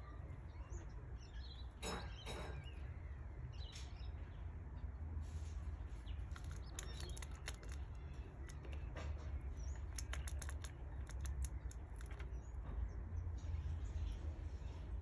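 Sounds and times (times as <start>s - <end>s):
faint high bird chirps: 0.0s - 4.4s
quick sharp clicks and ticks: 6.3s - 8.9s, 9.5s - 12.4s.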